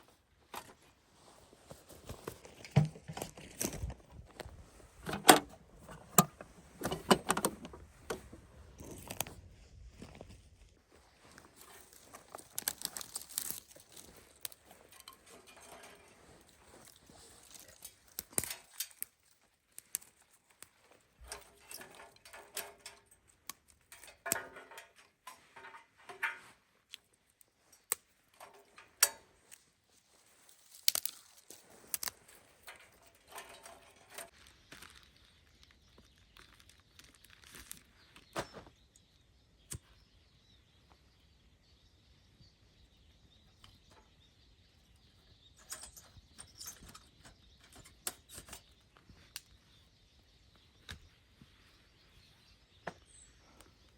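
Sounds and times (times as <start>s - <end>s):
crinkling and rustling: 0.0s - 39.1s
sharp clicks and knocks: 2.5s - 9.3s.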